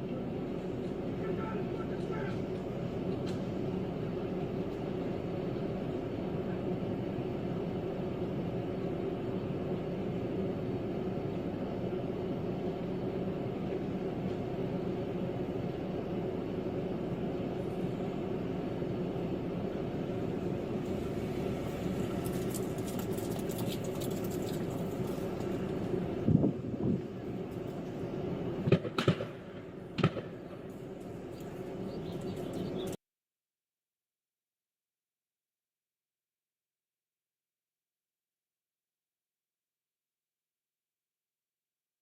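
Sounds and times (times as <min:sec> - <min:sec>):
vehicle engine and road noise: 0:00.0 - 0:33.0.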